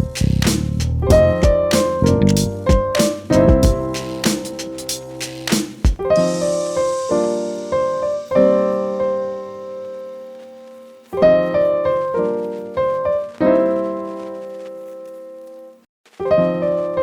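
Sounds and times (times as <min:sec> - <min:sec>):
slow piano chords: 0:01.0 - 0:05.2, 0:06.0 - 0:15.0.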